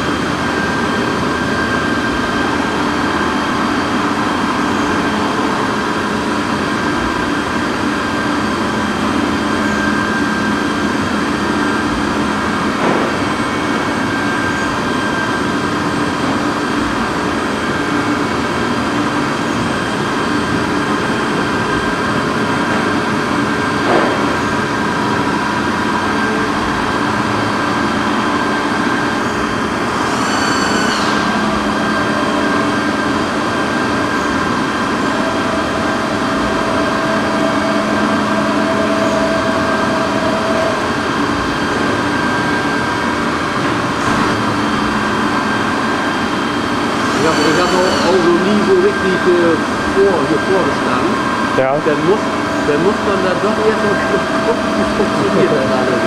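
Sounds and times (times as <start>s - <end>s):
milling machine humming: 0.0s - 56.0s
brief machine whine: 25.9s - 56.0s.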